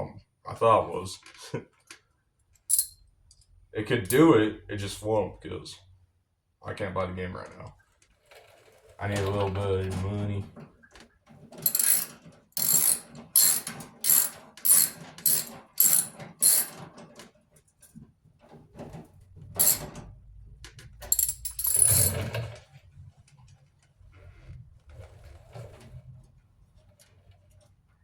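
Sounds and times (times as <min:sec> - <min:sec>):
socket ratchet wrench ratcheting: 0:02.7 - 0:03.0, 0:11.6 - 0:16.8, 0:19.6 - 0:19.9, 0:21.1 - 0:22.2.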